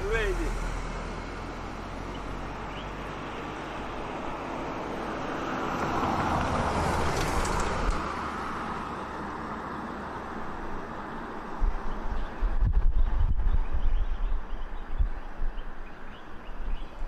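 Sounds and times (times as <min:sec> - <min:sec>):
low wind buffeting microphone: 0:10.3 - 0:17.0.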